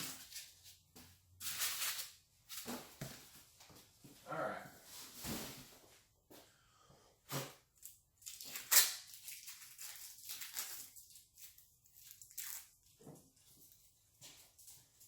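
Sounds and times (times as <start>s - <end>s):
styrofoam and cardboard crackling: 0.0s - 0.8s, 7.8s - 12.9s.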